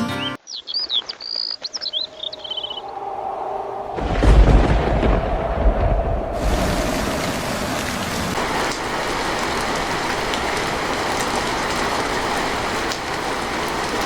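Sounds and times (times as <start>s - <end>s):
small birds chirping: 0.0s - 3.0s
deep rumble: 2.9s - 9.7s.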